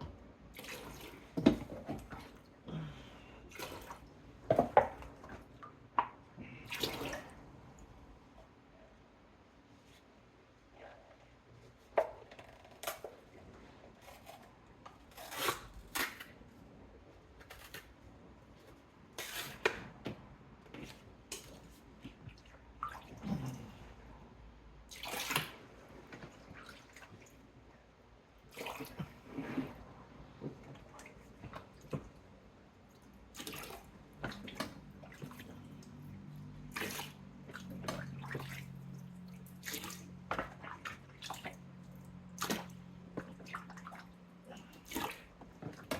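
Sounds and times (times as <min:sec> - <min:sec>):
water splashing and pouring: 0:06.6 - 0:07.7, 0:24.9 - 0:25.6, 0:33.3 - 0:41.6.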